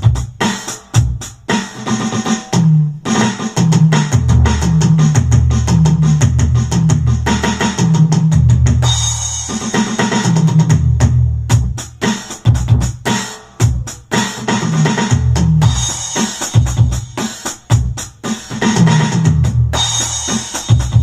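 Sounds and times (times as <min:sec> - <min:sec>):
electronic drum beat: 0:00.0 - 0:21.0
deep bass notes: 0:03.6 - 0:09.6, 0:10.3 - 0:13.0, 0:14.7 - 0:15.9, 0:18.8 - 0:20.2.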